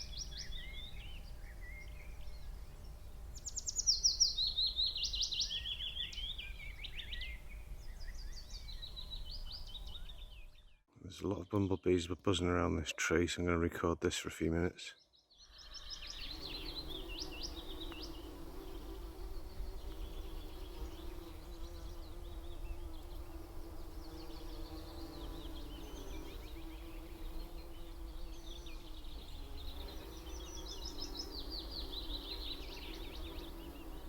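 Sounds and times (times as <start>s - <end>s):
small birds trilling: 0.0s - 13.2s, 14.5s - 34.0s
bumblebees buzzing: 15.6s - 34.0s.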